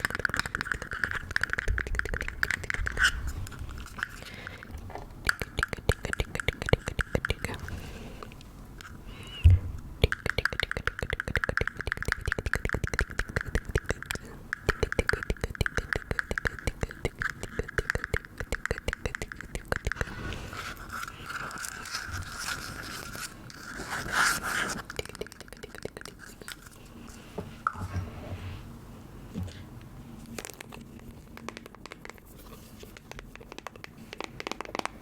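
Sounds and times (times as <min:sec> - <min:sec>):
soft scratching: 0:20.0 - 0:25.0.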